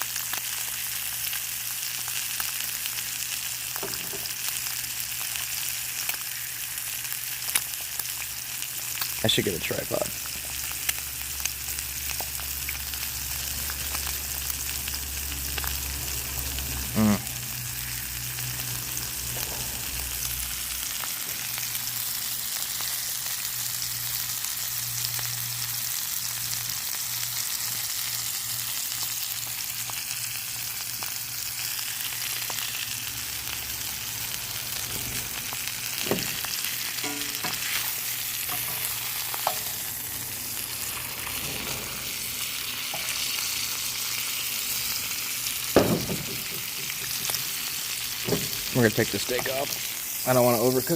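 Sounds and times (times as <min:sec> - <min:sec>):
food sizzling in a skillet: 0:00.0 - 0:50.9
low hum: 0:11.4 - 0:21.6.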